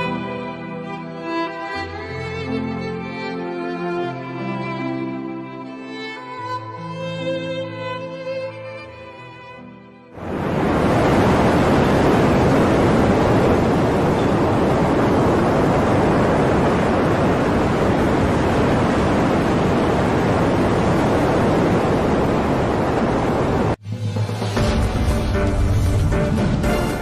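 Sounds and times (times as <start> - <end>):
hurricane wind rushing: 10.2 - 27.0
surf: 10.2 - 27.0.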